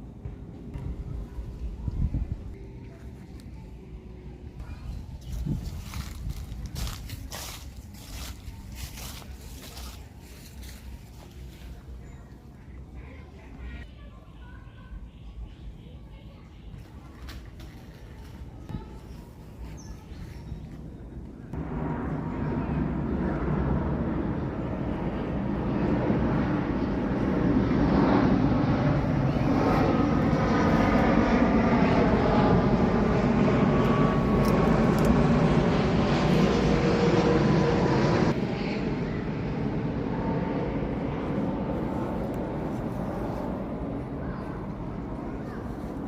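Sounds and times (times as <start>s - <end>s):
engine drone: 20.8s - 46.0s.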